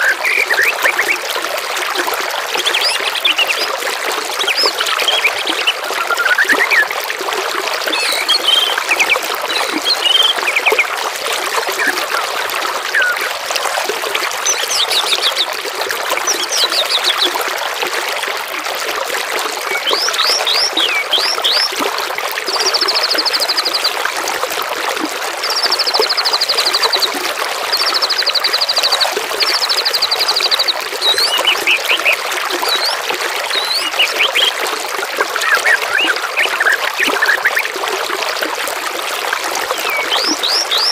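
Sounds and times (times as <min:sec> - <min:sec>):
babbling water: 0:00.0 - 0:40.9
songbirds singing: 0:02.5 - 0:03.8, 0:04.4 - 0:06.9, 0:07.9 - 0:10.9, 0:14.4 - 0:15.6, 0:16.2 - 0:17.4, 0:19.7 - 0:21.8, 0:25.4 - 0:34.6, 0:35.2 - 0:37.8, 0:39.7 - 0:40.9.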